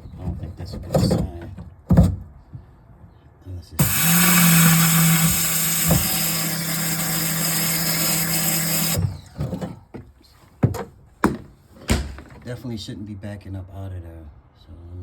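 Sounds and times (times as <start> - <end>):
pressure washer motor hum: 3.8 - 9.3
water jet hissing: 3.8 - 9.3.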